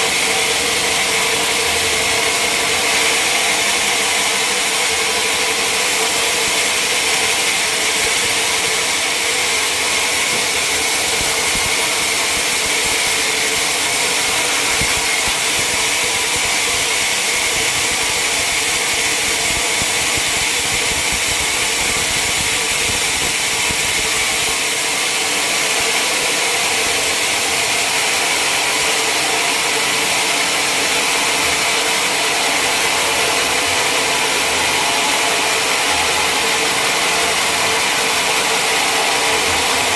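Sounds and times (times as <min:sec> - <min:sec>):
saw cutting through log: 0:00.0 - 0:39.9
machine drone: 0:00.1 - 0:27.5.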